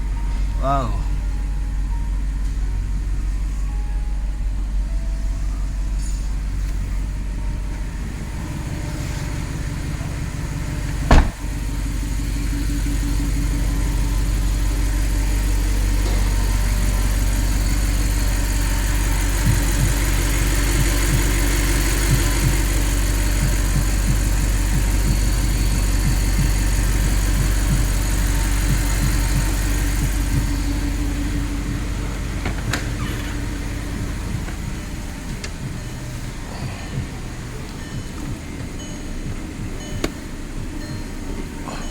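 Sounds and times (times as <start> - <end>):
car engine running: 0.0 - 41.9
sharp knock: 11.1 - 11.4.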